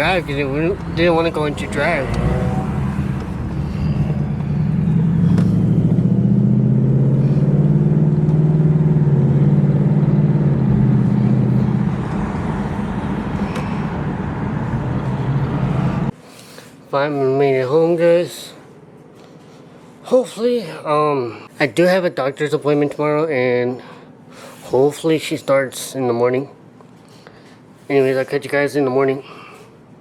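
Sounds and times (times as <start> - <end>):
car engine droning: 0.0 - 16.2.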